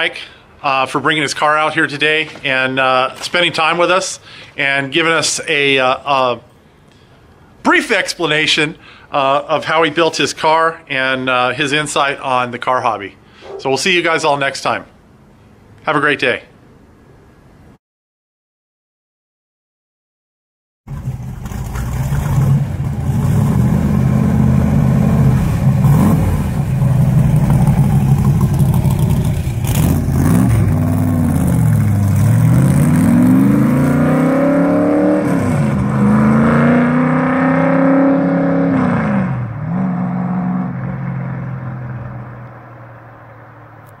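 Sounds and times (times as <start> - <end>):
car engine rumbling and revving: 20.9 - 44.0.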